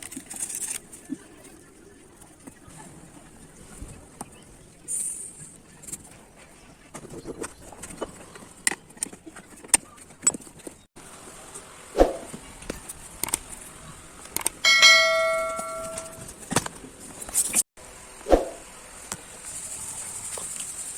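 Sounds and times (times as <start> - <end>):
handling clicks and knocks: 14.2 - 16.7
bell-like metallic ring: 14.6 - 16.2.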